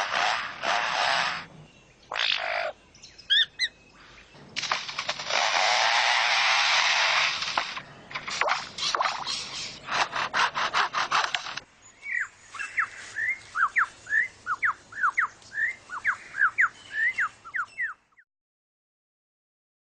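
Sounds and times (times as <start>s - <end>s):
bird mimicking chainsaw: 0.0s - 1.5s, 4.6s - 11.6s.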